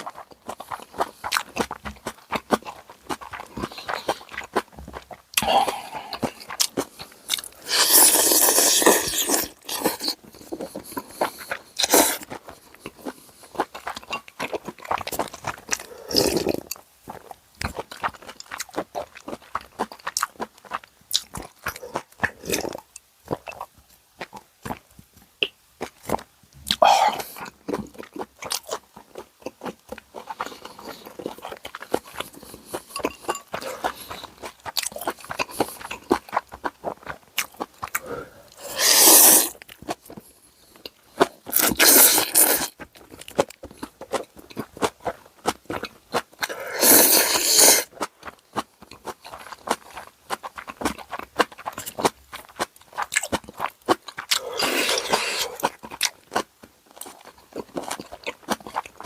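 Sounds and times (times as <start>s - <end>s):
noodle slurps: 7.5s - 12.3s, 38.0s - 39.6s, 41.5s - 42.8s, 46.4s - 47.9s, 54.3s - 55.8s
crunchy chewing and biting: 25.8s - 59.0s.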